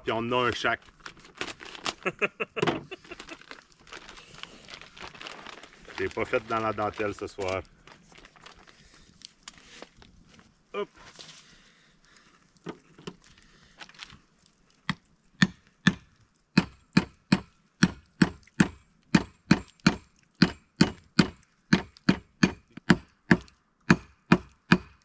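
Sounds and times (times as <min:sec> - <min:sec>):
blade chopping bone on wooden board: 0:16.6 - 0:25.0.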